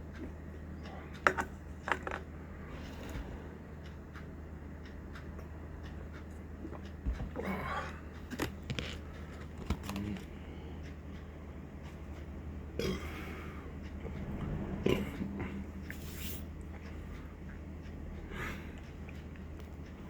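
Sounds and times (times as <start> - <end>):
steady low hum: 0.0 - 20.0
person burping: 12.8 - 13.2.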